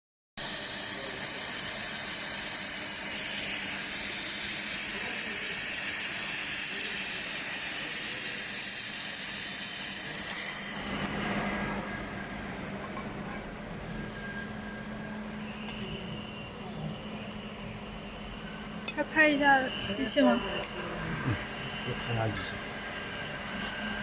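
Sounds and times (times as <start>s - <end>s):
laser welding hiss and sizzle: 0.4s - 10.9s
machine humming: 0.4s - 24.0s.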